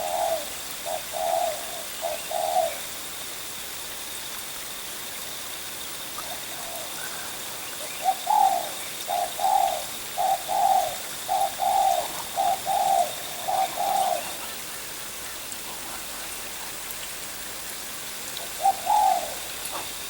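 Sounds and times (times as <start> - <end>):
dove cooing: 0.0 - 2.9, 6.2 - 14.7, 18.4 - 20.0.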